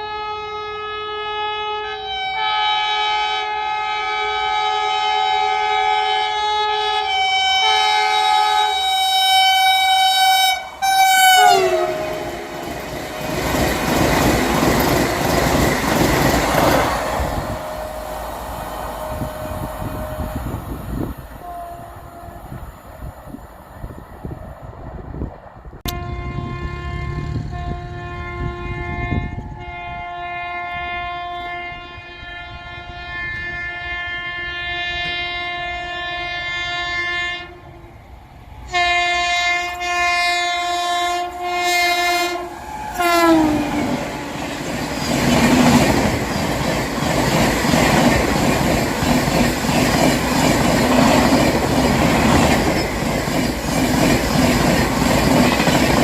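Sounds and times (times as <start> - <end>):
train horn blasts: 0.0 - 14.8, 16.7 - 22.8, 25.8 - 37.9, 38.6 - 44.7
train rushing past: 6.9 - 56.0
wheels clickety-clack on rail: 11.2 - 21.2, 42.1 - 56.0.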